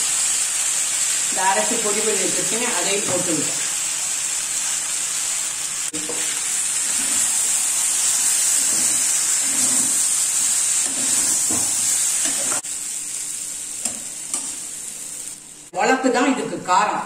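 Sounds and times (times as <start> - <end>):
food sizzling in oil: 0.0 - 15.8
metal spoon stirring: 8.6 - 10.1.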